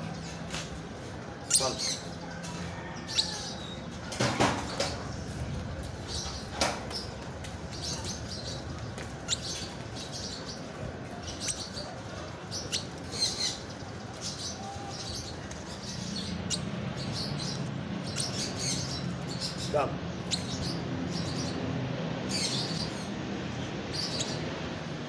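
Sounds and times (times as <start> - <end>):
small bird chirping: 1.4 - 2.1, 7.9 - 10.5, 11.2 - 11.9, 12.5 - 21.6, 24.0 - 24.4.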